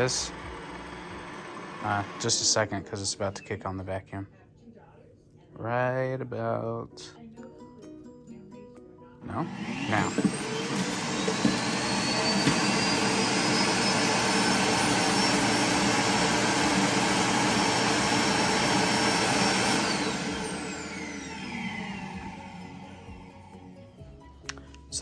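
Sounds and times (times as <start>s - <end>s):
suction motor whine: 0.0s - 2.7s, 9.4s - 23.5s.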